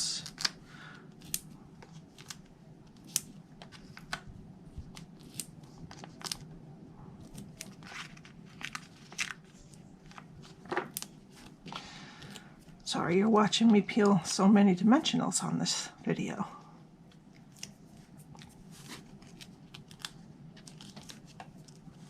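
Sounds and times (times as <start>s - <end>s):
light paper clicks and crinkles: 1.2s - 6.5s, 7.2s - 12.8s, 17.1s - 22.0s.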